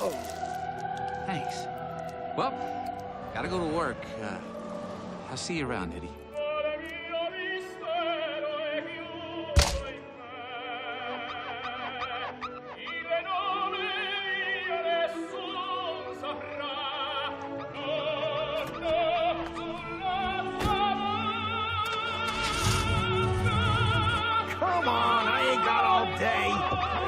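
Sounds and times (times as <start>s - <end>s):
operatic singing: 0.0s - 27.0s
sharp loud thud: 9.6s - 10.0s.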